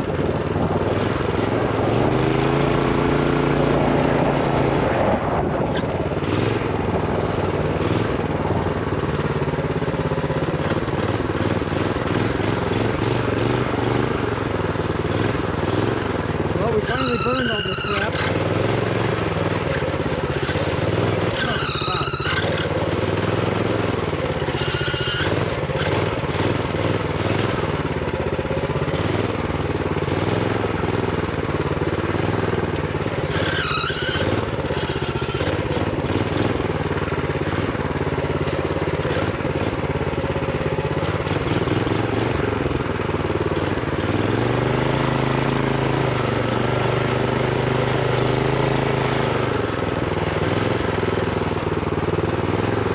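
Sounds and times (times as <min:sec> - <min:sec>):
minibike engine running: 0:00.0 - 0:52.9.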